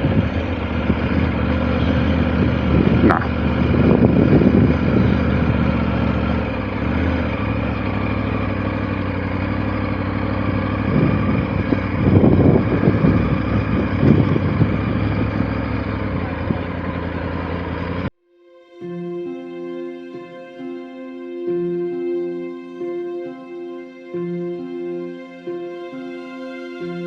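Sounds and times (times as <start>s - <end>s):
motorcycle engine running: 0.0s - 18.1s.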